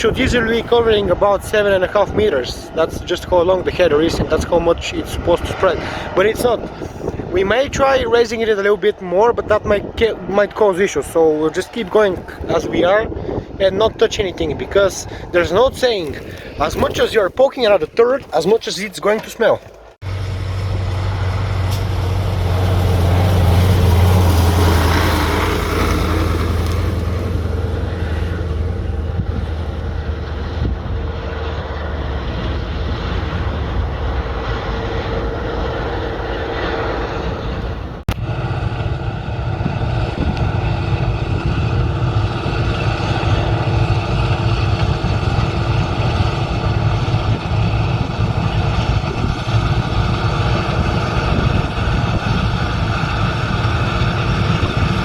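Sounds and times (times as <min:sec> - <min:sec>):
combine harvester droning: 0:18.4 - 0:55.0.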